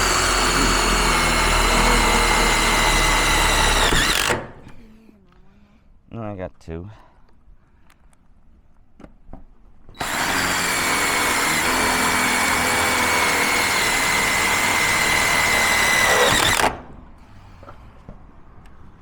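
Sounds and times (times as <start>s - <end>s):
power drill whining: 0.0s - 4.8s, 10.0s - 16.9s.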